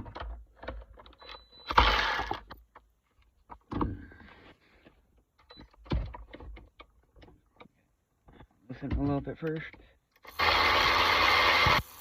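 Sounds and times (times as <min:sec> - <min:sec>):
loud tool bursts: 0:10.2 - 0:12.0.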